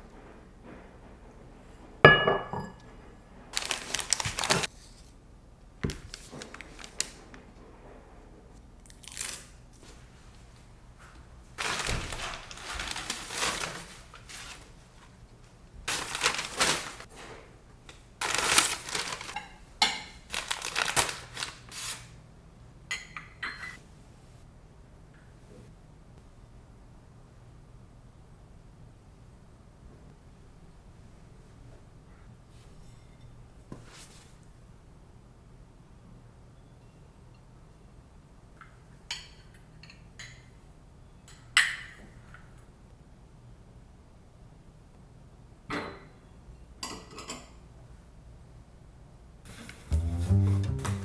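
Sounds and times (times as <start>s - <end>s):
packaging crinkling: 3.5s - 4.7s, 5.9s - 7.4s, 8.8s - 9.6s, 11.6s - 14.7s, 15.9s - 17.1s, 18.2s - 19.4s, 20.2s - 22.1s.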